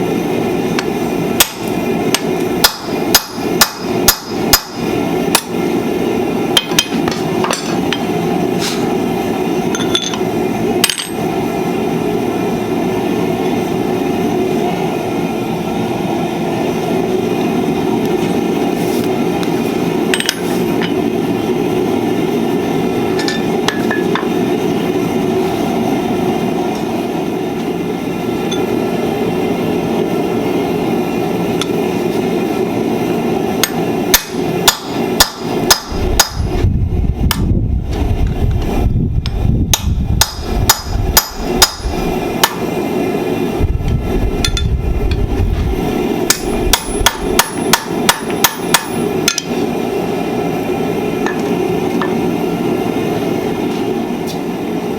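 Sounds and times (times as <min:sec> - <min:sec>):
hammer ringing on anvil: 0:46.3 - 0:49.5.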